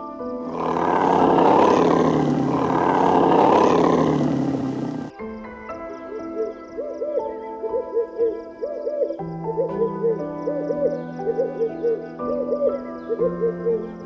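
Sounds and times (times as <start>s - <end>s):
background music: 0.0s - 14.0s
big cat roaring: 0.4s - 5.1s.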